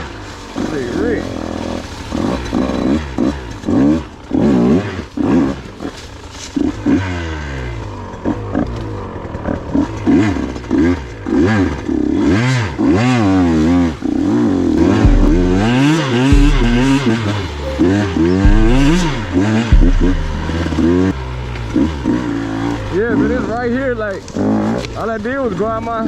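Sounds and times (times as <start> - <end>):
dirt bike engine revving: 0.0 - 25.4.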